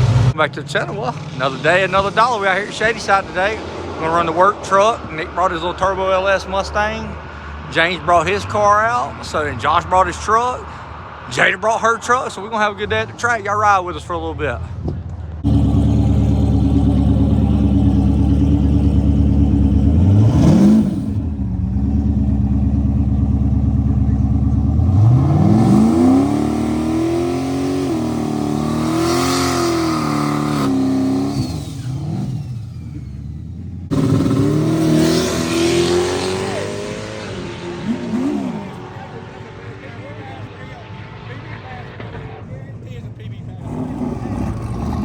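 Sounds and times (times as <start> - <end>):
vehicle engine revving: 0.0 - 0.4, 15.4 - 42.9, 43.5 - 45.0.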